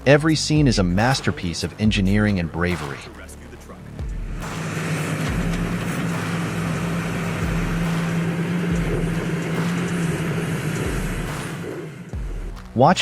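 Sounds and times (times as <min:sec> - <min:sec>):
heavy vehicle engine running: 0:03.8 - 0:12.2.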